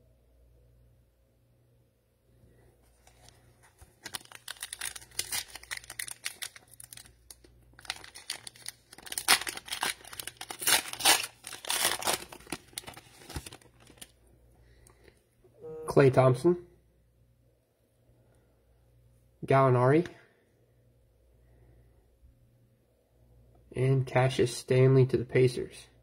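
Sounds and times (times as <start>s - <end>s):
cellophane wrapper crinkling: 2.9s - 14.2s.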